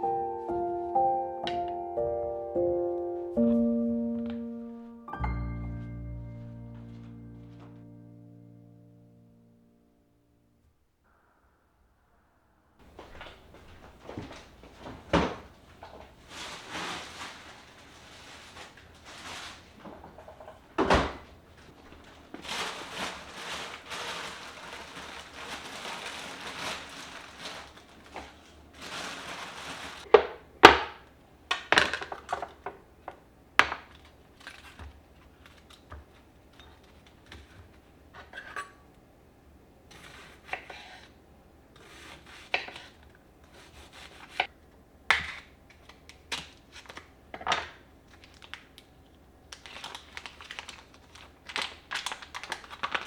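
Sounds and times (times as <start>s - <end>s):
rubbing and rustling: 12.8s - 20.7s, 21.6s - 30.1s.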